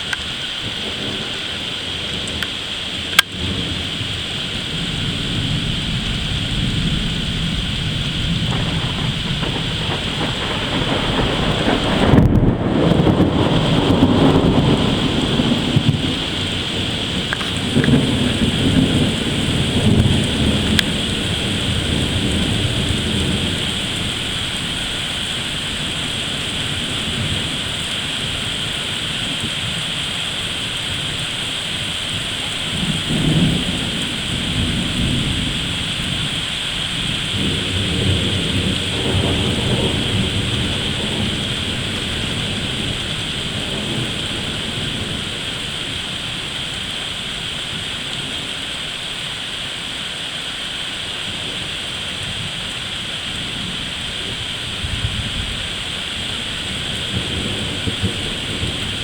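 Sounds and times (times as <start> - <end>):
thunder rolling: 0.0 - 48.8, 51.4 - 59.0
rain hissing: 0.0 - 59.0.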